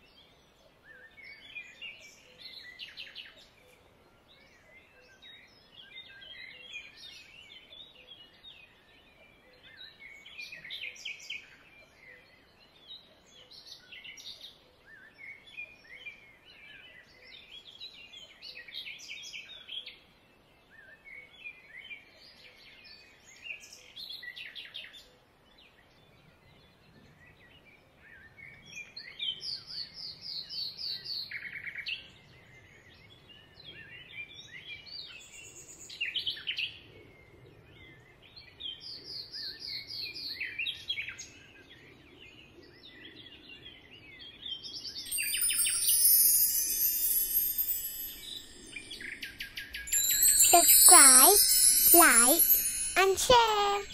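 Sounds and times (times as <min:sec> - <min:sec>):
birds chirping and singing: 0:45.1 - 0:53.0
high-pitched shimmering sound: 0:45.1 - 0:53.9.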